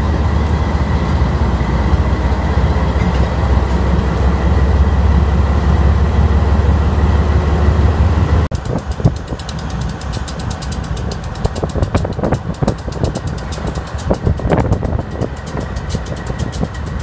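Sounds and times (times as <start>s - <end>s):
diesel locomotive engine rumbling: 0.0s - 17.0s
rapid clicks and knocks: 8.5s - 17.0s.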